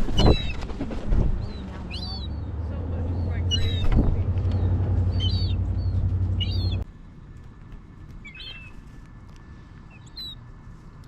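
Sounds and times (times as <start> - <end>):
seagulls calling: 0.0 - 0.7, 1.4 - 6.8, 8.2 - 8.9
low steady rumble: 0.0 - 11.0.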